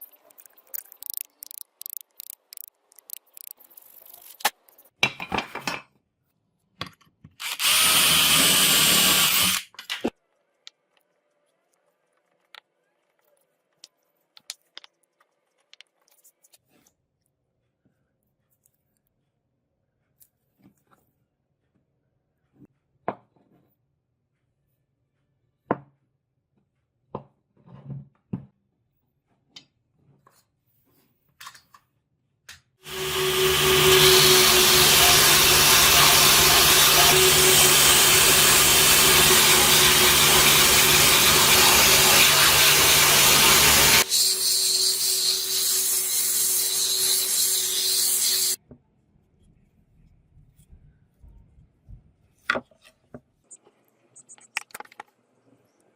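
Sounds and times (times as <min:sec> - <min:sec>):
power tool running: 0:07.4 - 0:09.7, 0:32.8 - 0:48.6.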